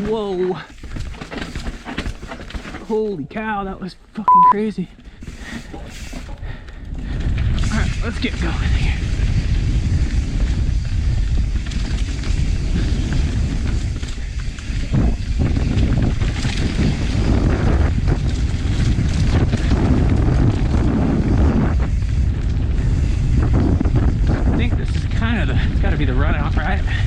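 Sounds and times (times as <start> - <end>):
bike rattling over rough trail: 0.0 - 3.9, 4.8 - 27.0
wind buffeting microphone: 6.4 - 27.0.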